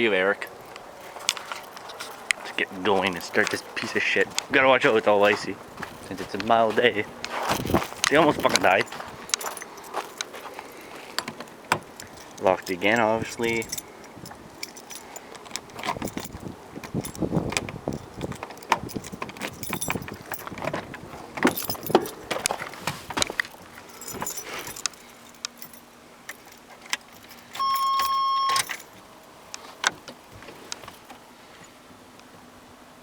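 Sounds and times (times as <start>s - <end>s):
keys jangling: 0.4s - 29.8s
door lock clicks and rattles: 11.2s - 22.7s
steady warning tone: 27.6s - 28.9s.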